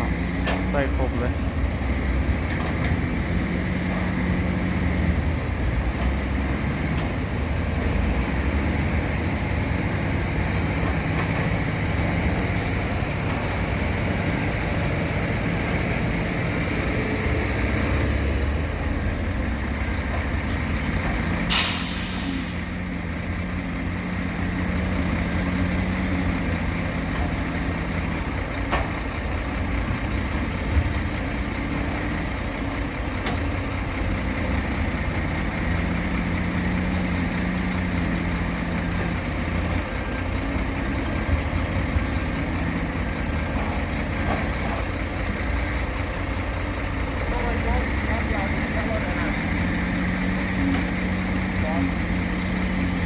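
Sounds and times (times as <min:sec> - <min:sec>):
heavy diesel machinery running: 0:00.0 - 0:53.0
short hiss: 0:21.5 - 0:22.7.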